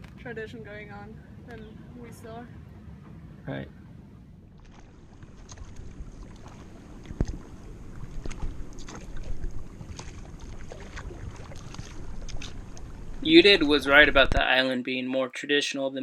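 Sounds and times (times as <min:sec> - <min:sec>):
wind rumble on microphone: 0:00.0 - 0:14.5
oars splashing: 0:04.4 - 0:14.4.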